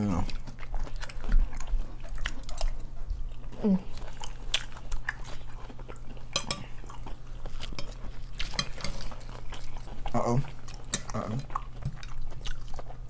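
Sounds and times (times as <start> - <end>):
chewing and crunching chips: 0.0 - 13.0
forks clinking on plates: 6.4 - 6.7.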